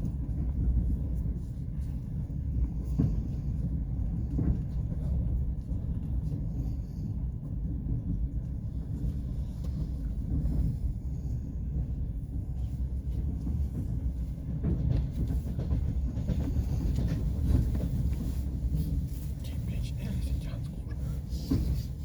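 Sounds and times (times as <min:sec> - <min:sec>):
train rumbling along track: 0:00.0 - 0:22.0.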